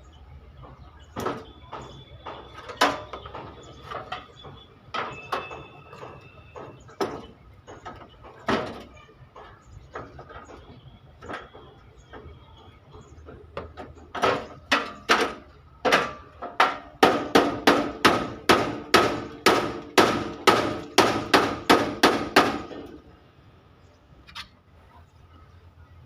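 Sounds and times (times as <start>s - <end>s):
hammer striking sheet steel: 14.2s - 23.0s.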